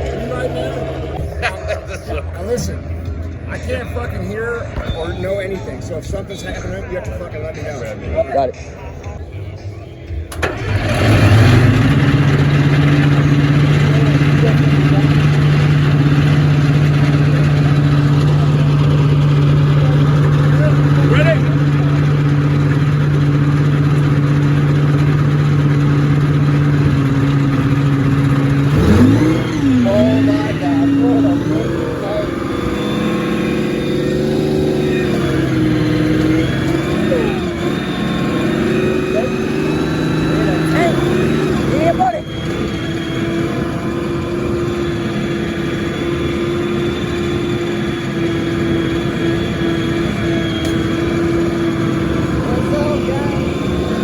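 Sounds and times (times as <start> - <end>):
tank engine running: 0.0 - 8.5, 9.5 - 54.0
constant humming tone: 11.7 - 54.0.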